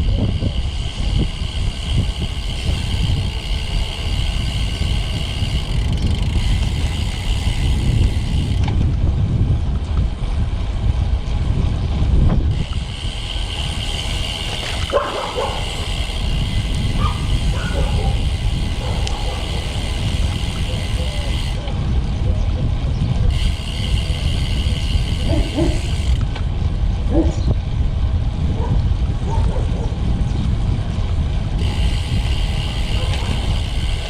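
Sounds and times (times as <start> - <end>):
road rumble: 0.0 - 34.0
wind on microphone: 0.0 - 34.0
dog barking: 14.9 - 15.8, 17.0 - 18.2, 18.8 - 19.6, 25.3 - 25.8, 27.1 - 27.4, 28.6 - 30.0, 33.0 - 33.3.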